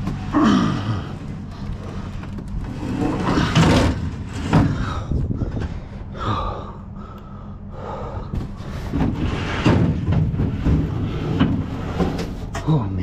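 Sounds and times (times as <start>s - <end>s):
low steady rumble: 0.0s - 13.0s
man gasping and breathing hard: 4.7s - 8.6s.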